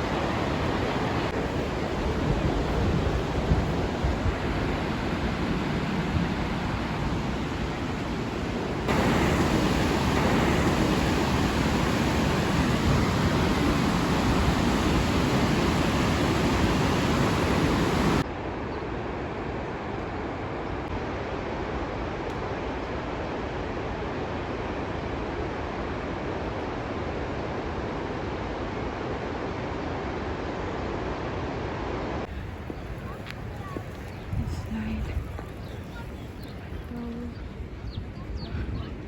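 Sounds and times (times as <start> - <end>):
waterfall roaring: 0.0 - 18.2.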